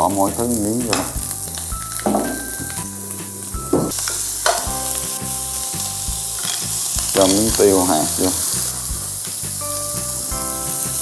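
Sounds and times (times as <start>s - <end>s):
rice sizzling in a frying pan: 3.9s - 11.0s.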